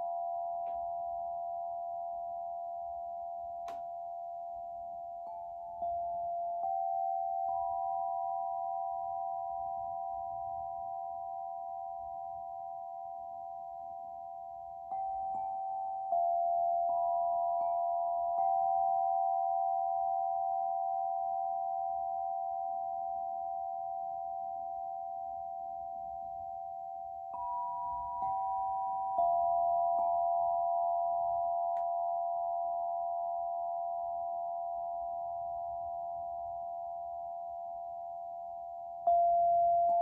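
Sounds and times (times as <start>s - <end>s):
struck singing bowls ringing: 25.6s - 33.5s.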